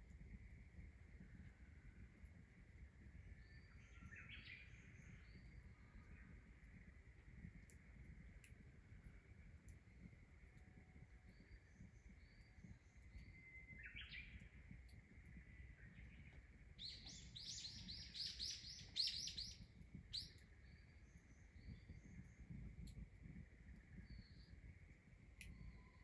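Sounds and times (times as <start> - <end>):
bird chirping: 16.8 - 20.4.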